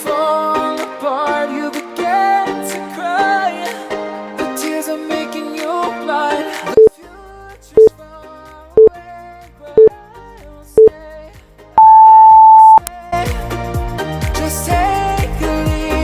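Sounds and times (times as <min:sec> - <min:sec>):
faint pop music: 0:00.0 - 0:16.0
long high beep: 0:11.8 - 0:12.8
short timer beeps: 0:11.8 - 0:12.8.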